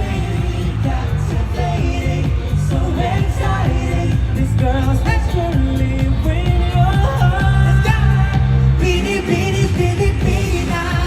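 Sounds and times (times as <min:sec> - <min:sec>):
pop song over sound system: 0:00.0 - 0:11.0.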